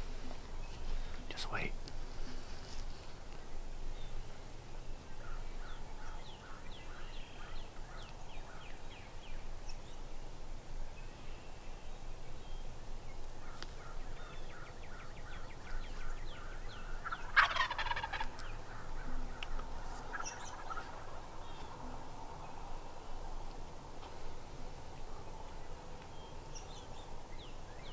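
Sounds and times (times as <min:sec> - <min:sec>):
turkey rattling gobble: 0:16.9 - 0:21.2
turkey yelps: 0:17.0 - 0:18.9.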